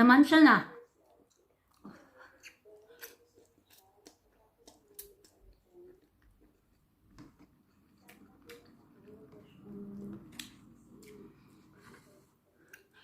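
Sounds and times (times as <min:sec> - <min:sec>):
chewing mouth clicks: 0:01.0 - 0:09.2.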